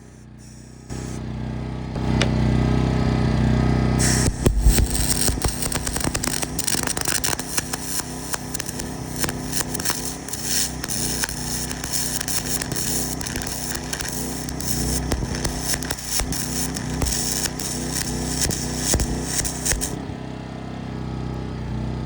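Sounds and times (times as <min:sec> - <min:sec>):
welder crackling sputter: 0:00.0 - 0:01.2, 0:04.0 - 0:20.0
generator engine drone: 0:00.0 - 0:22.0.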